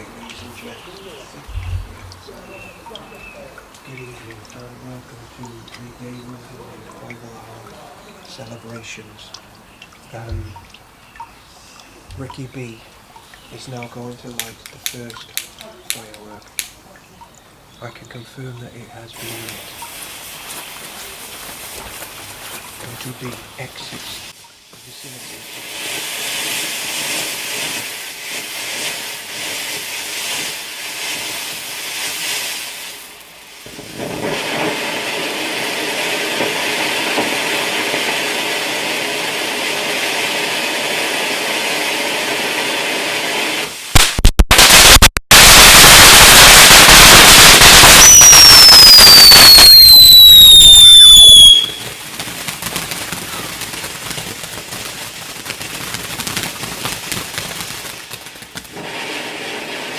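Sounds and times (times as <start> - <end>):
firework bangs: 0.0 - 2.4, 25.1 - 59.9
firework hissing: 0.0 - 2.8, 19.2 - 59.9
faint crackle: 0.0 - 40.0, 43.6 - 59.9
firework whistles falling in pitch: 44.0 - 51.9.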